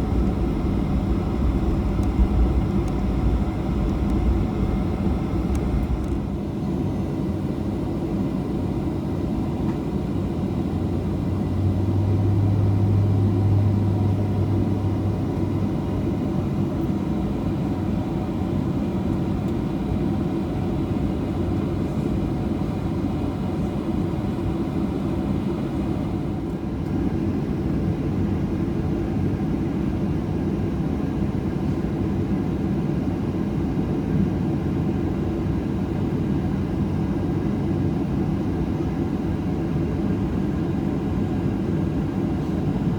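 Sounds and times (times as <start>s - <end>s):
faint steady whining tones: 0.0s - 11.2s
airplane cabin engine drone: 0.0s - 42.9s.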